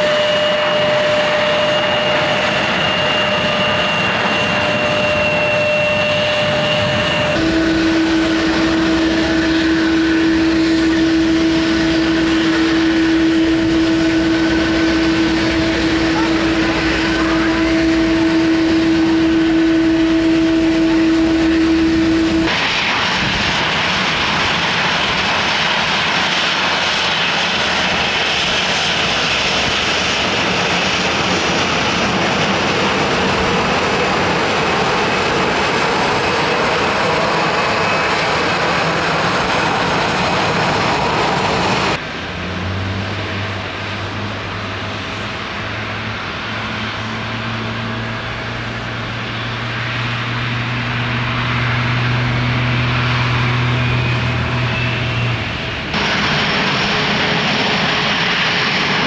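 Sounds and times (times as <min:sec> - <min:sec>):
low hum: 0:00.0 - 0:23.4
jet engine rushing noise: 0:00.0 - 0:59.0
jet engine tone: 0:00.0 - 0:59.0.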